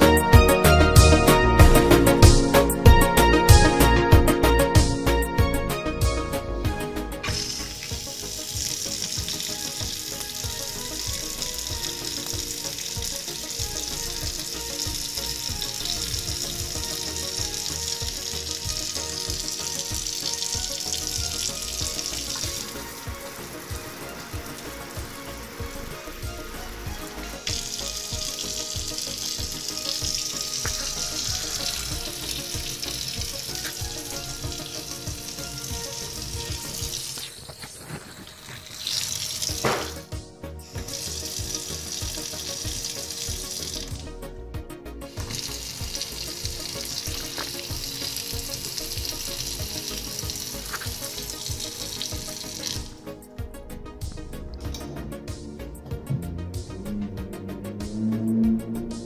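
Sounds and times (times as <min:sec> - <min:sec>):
background music: 0:00.0 - 0:59.0
faucet water running into sink: 0:07.1 - 0:44.1, 0:45.0 - 0:55.1
sharp clunk: 0:39.6 - 0:40.0.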